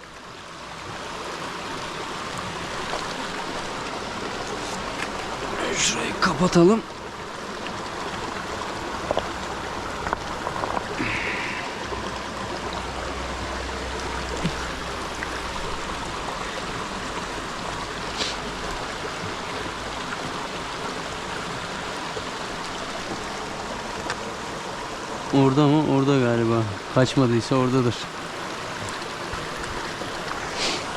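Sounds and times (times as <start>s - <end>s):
creek water running: 0.0s - 30.9s.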